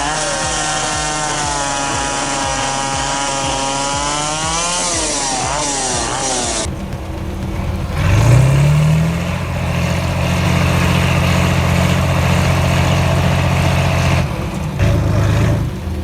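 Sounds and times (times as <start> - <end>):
heavy vehicle engine revving: 0.0 - 16.0.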